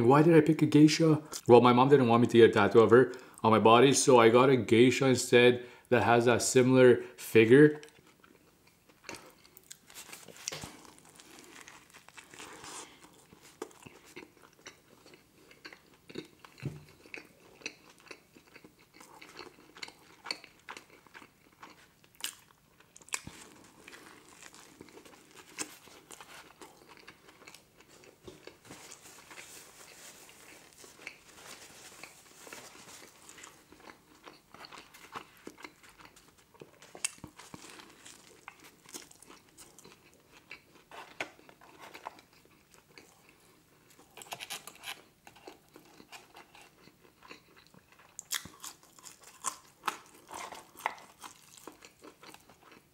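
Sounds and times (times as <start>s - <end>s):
chewing and biting burger: 8.0s - 52.9s.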